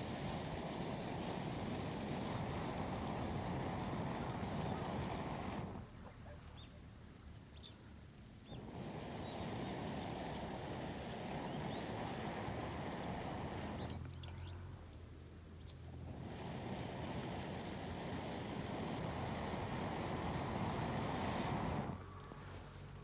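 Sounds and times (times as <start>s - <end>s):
low rushing noise on microphone: 0.0s - 6.3s, 8.5s - 23.0s
small birds chirping: 0.1s - 14.7s, 15.5s - 15.9s.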